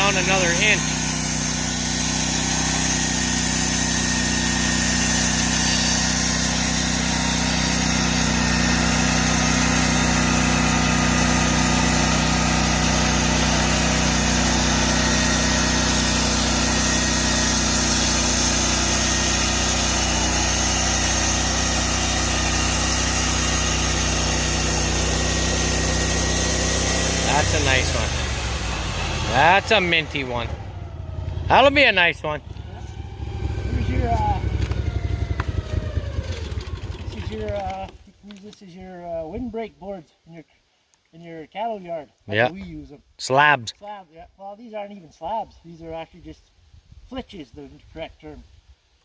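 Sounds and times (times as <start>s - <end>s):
band sawmill sawing a log: 0.0s - 37.7s.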